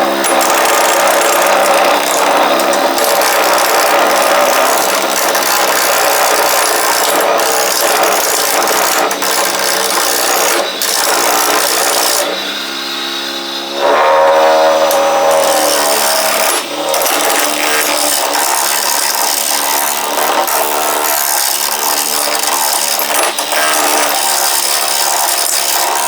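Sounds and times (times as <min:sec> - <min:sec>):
lathe motor hum: 0:00.0 - 0:26.0
chisel scraping wood on lathe: 0:13.7 - 0:26.0.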